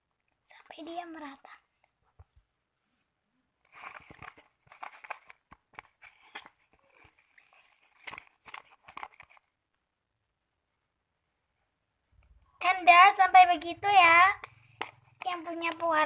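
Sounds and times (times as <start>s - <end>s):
slime stirred with sticky squelches: 2.9s - 9.5s, 13.8s - 16.0s.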